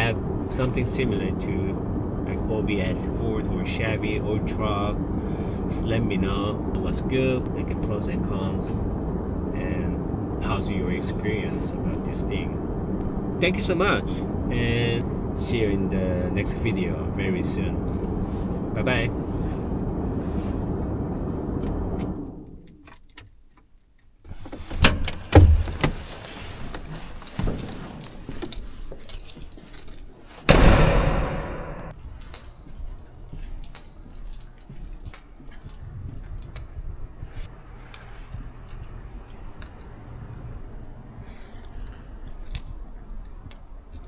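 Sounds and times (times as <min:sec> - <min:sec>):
low rumble: 0:00.0 - 0:22.7, 0:30.5 - 0:32.0
handling clicks and jingling: 0:22.6 - 0:30.4, 0:31.9 - 0:44.0
heavy thud: 0:30.5 - 0:31.9.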